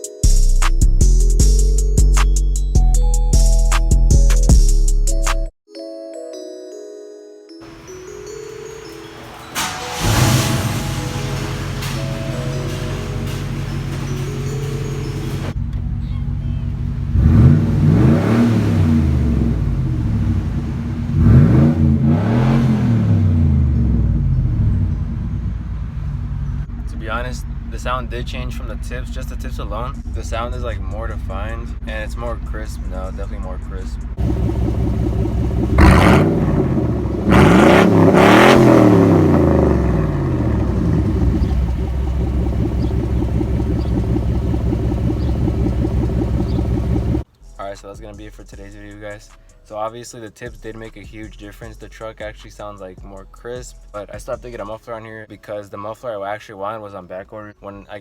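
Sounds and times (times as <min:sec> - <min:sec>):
truck engine idling and revving: 0:09.1 - 0:47.3.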